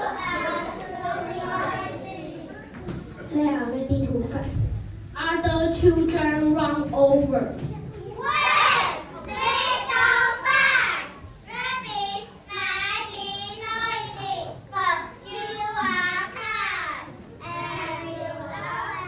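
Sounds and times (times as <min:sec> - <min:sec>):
children singing: 0:00.0 - 0:03.3, 0:08.1 - 0:19.0.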